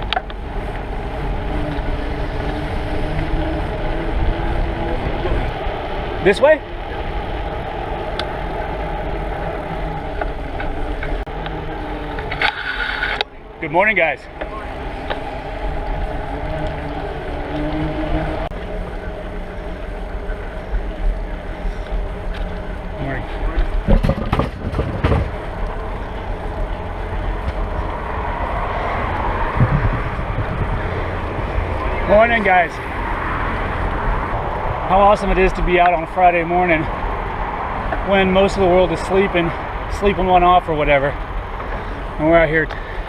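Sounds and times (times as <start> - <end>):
vehicle passing: 0.0 - 43.0
wind and road noise: 0.0 - 43.0
faint bicycle clicks: 7.1 - 13.4, 18.5 - 23.9, 41.1 - 43.0.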